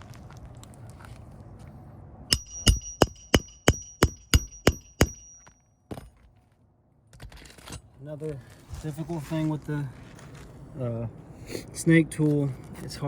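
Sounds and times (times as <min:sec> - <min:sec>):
hammer striking nails: 0:02.3 - 0:06.1.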